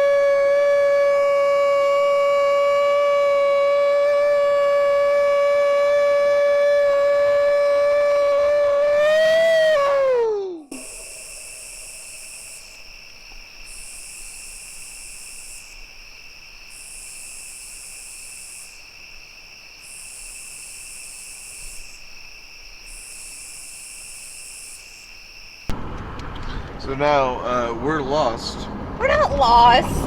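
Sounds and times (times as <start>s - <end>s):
person imitating wailing call: 0.0s - 11.9s
insect buzzing: 0.0s - 25.7s
night insects trilling: 0.0s - 25.7s.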